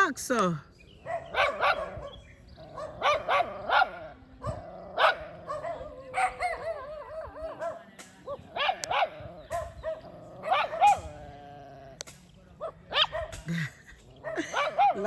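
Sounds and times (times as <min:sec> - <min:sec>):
dogs barking: 0:00.9 - 0:15.0.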